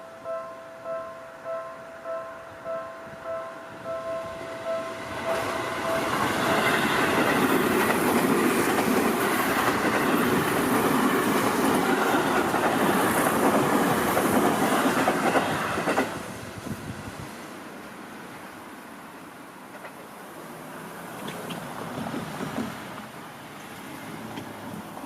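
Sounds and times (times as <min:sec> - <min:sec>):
train wheels clattering on rails: 0:04.8 - 0:16.4, 0:19.6 - 0:20.2, 0:21.1 - 0:25.0.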